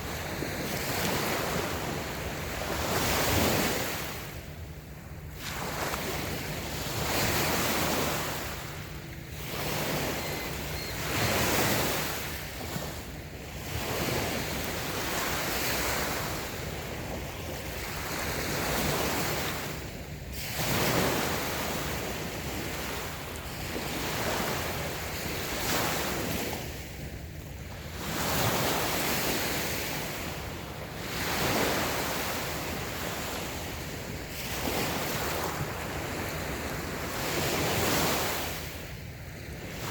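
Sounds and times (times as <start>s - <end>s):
waves washing onto sandy beach: 0.0s - 27.1s.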